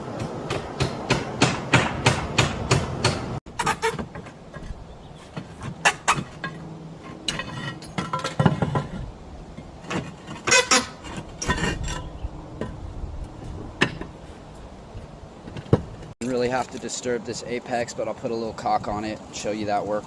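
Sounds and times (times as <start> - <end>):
roof tiles clinking: 3.5 - 12.8.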